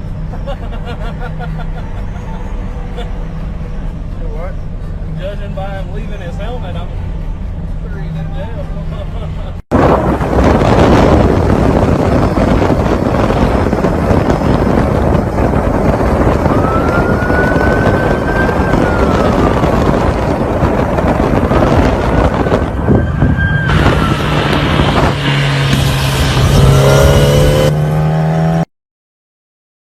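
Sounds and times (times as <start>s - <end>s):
wind and road rush: 0.0s - 28.7s
police siren wailing: 15.9s - 25.2s.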